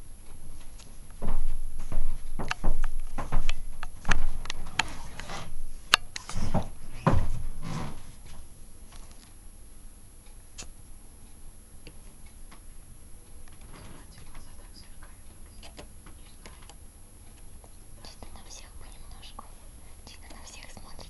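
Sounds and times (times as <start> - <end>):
soft rustle: 0.2 - 9.4, 13.5 - 16.7.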